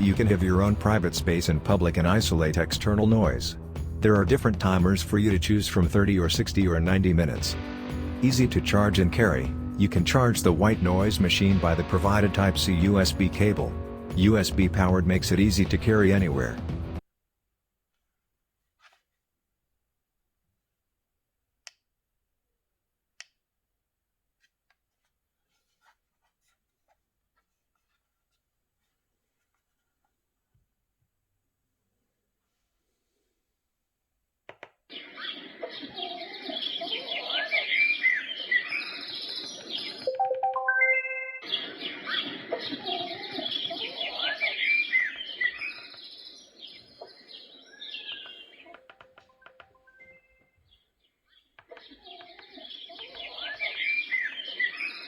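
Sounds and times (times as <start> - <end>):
recorded birdsong through small speaker: 0.0 - 16.6, 34.6 - 40.1, 41.4 - 55.0.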